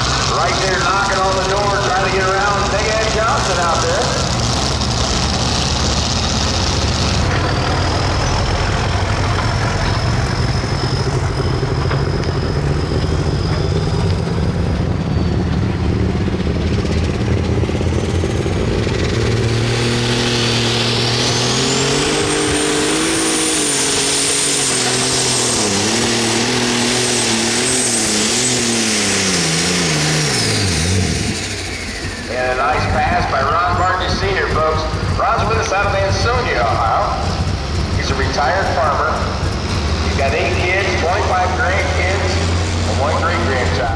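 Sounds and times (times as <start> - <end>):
diesel engine running under load: 0.0 - 43.9
high whine: 0.0 - 43.9.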